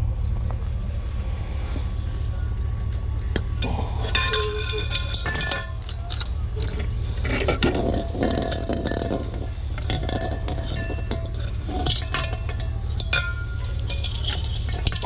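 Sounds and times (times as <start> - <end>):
vehicle running rumble: 0.0 - 15.0
loose metal rattling: 3.4 - 15.0.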